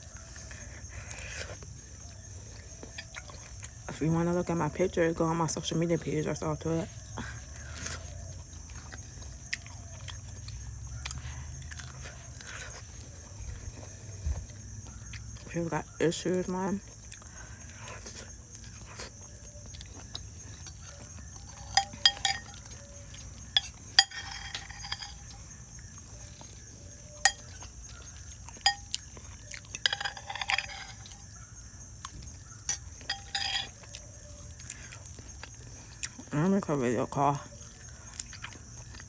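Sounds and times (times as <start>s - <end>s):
cutlery clinking on dishes: 20.6s - 22.9s, 23.5s - 25.4s, 27.2s - 27.7s, 28.6s - 29.0s, 29.7s - 31.1s, 32.7s - 33.8s.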